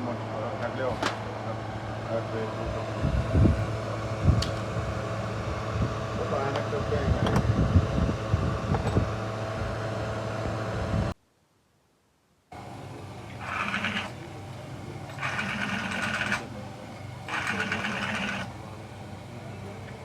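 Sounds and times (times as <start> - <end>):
mechanical hum: 0.0 - 20.0
small machine whirring: 12.5 - 20.0.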